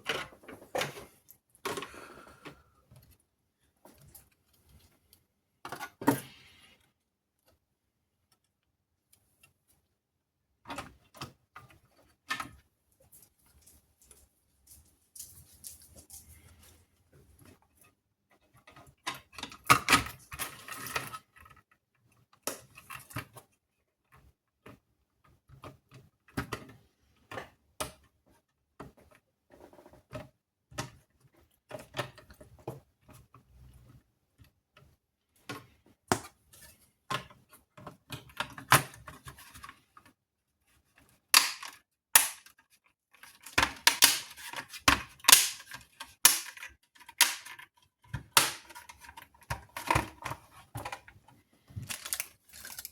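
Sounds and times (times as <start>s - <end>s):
clicks and taps of small parts: 41.3s - 51.1s.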